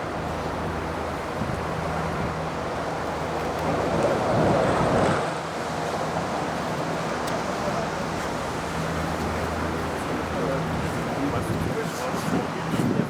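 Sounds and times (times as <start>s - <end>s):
wind on microphone: 11.3s - 13.0s.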